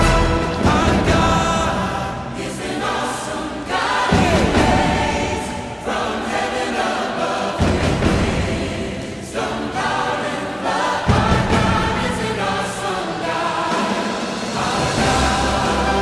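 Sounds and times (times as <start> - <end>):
choir singing hymn-like piece: 0.0 - 16.0.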